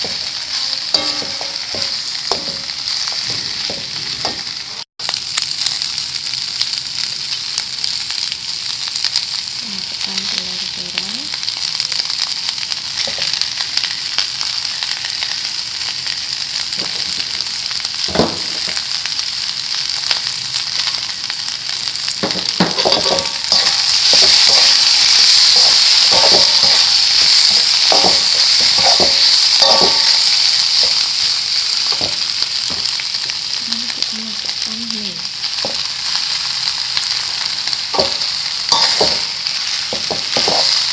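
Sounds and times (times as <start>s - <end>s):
metal spatula scraping a pan: 0.0s - 4.5s, 22.5s - 31.0s, 38.0s - 40.9s
food sizzling in hot oil: 0.0s - 40.9s.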